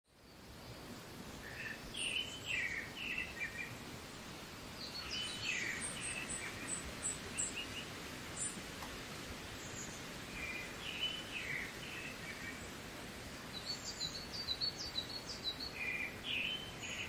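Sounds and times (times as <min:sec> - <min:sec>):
steady outdoor hiss: 0:00.1 - 0:17.0
birds singing: 0:00.2 - 0:04.0, 0:04.7 - 0:08.9, 0:09.5 - 0:17.0.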